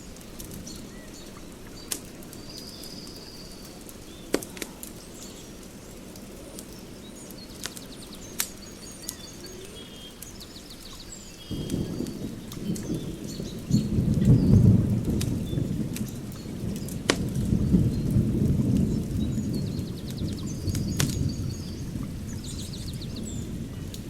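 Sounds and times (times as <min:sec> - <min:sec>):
birds chirping: 0:00.0 - 0:24.0
fire crackling and popping: 0:00.0 - 0:24.0.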